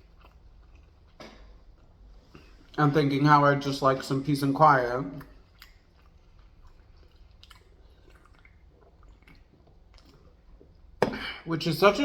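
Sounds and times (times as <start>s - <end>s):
faint chewing: 0.0s - 2.8s, 5.1s - 11.0s.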